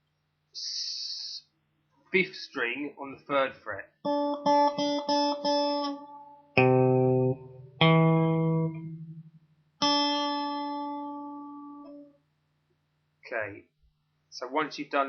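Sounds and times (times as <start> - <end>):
guitar picking: 4.0 - 12.2.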